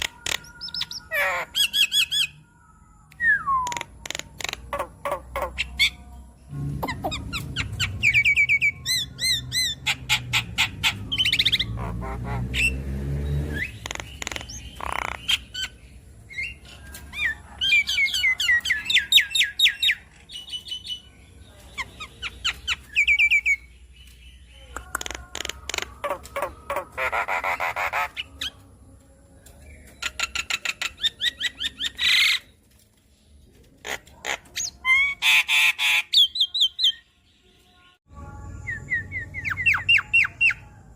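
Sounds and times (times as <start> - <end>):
myna chirping and whistling: 3.0 - 6.0, 6.8 - 21.1, 38.6 - 40.6.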